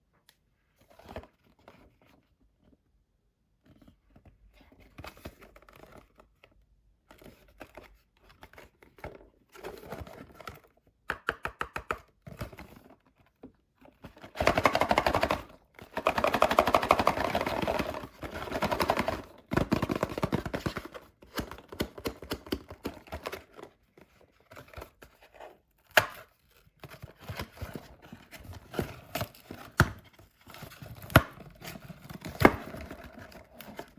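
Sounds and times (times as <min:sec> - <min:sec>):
small clicks and taps: 0:11.1 - 0:12.1.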